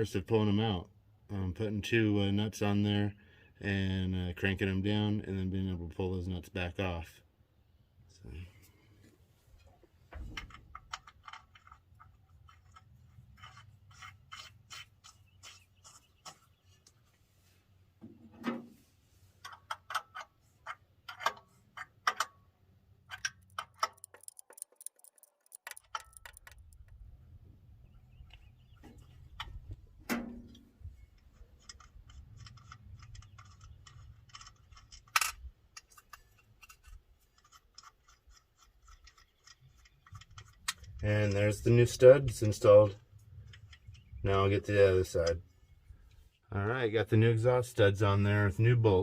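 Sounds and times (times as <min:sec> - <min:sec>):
wrench clicking: 0:23.1 - 0:27.0
nuts clinking: 0:23.3 - 0:26.9.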